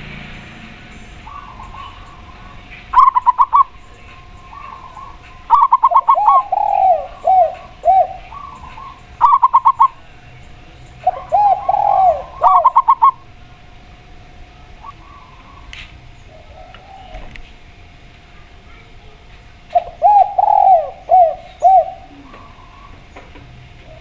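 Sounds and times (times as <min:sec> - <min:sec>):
bursts of rapid bird notes: 0:00.0 - 0:14.0, 0:19.7 - 0:23.1
doves cooing: 0:00.0 - 0:18.1, 0:19.2 - 0:24.0.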